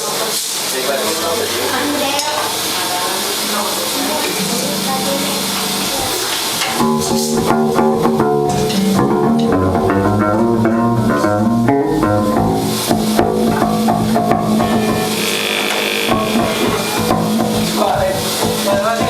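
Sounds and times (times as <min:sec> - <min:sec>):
amplifier hiss and hum: 0:00.0 - 0:18.8
electric guitar: 0:03.9 - 0:18.6
drum kit: 0:05.2 - 0:19.0
bass guitar: 0:06.7 - 0:18.7.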